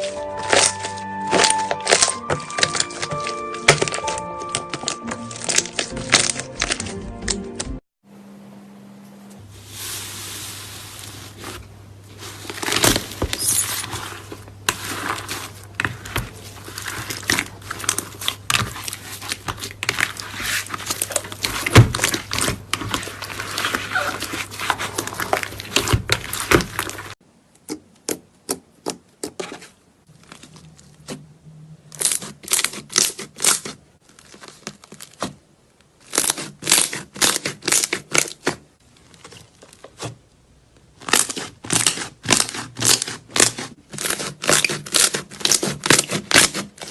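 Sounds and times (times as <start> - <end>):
slime crackling and popping: 0.0 - 6.9, 32.0 - 35.3, 36.0 - 38.6, 41.0 - 46.9.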